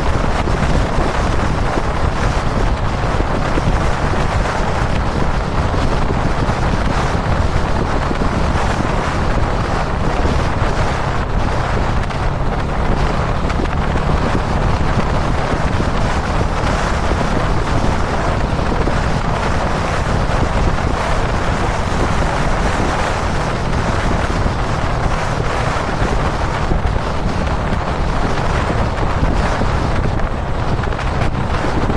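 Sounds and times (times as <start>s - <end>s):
motorcycle engine drone: 0.0s - 31.9s
wind rush on microphone: 0.0s - 31.9s.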